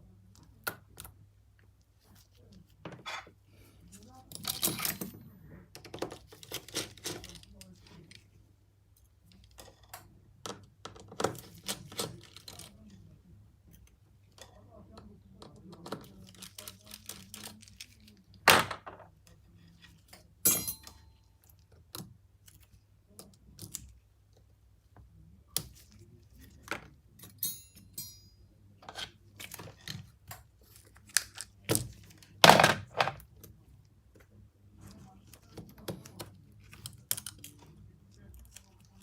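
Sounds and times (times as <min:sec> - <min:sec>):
tools clicking and knocking: 0:20.1 - 0:22.1, 0:26.6 - 0:30.5
metallic ring of tool set down: 0:20.5 - 0:21.0, 0:27.3 - 0:28.4.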